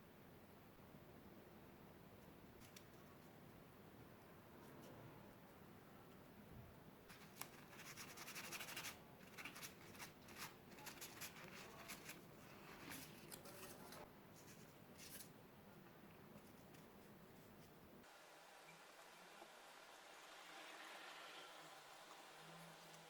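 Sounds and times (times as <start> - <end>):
hands handling cardboard: 7.1 - 15.4.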